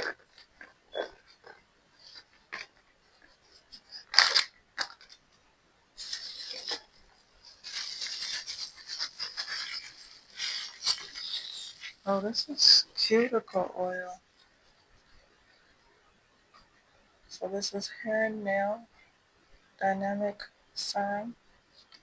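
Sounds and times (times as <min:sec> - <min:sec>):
packaging crinkling and rustling: 0:00.0 - 0:05.3, 0:06.0 - 0:12.1.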